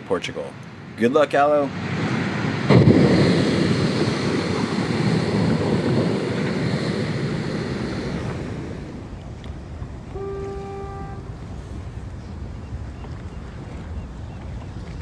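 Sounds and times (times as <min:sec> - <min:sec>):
wind: 0:00.0 - 0:15.0
surf rushing: 0:00.1 - 0:12.7.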